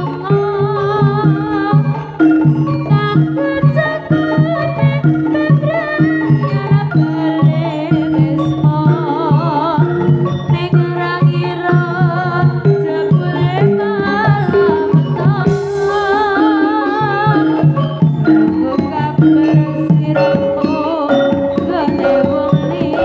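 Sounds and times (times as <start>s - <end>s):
ornamented melody line: 0.0s - 23.0s
ringing metallophone notes: 0.0s - 23.0s
drum strokes: 21.2s - 23.0s.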